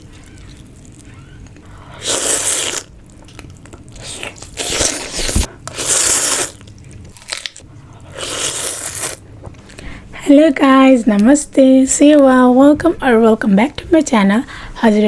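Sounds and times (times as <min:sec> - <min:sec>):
crunching bites of food: 0:00.0 - 0:09.2.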